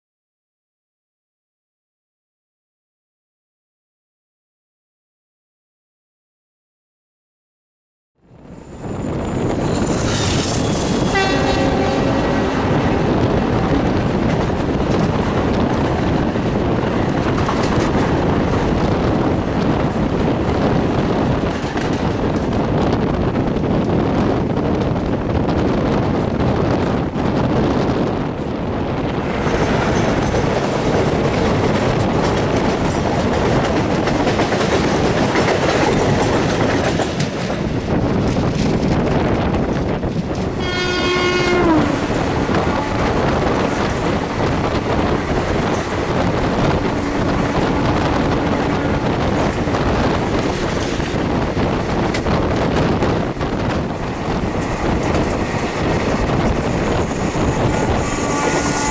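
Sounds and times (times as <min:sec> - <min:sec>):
moving train running noise: 0:08.2 - 0:58.9
train horn: 0:10.8 - 0:14.0, 0:40.6 - 0:43.3, 0:57.6 - 0:58.9.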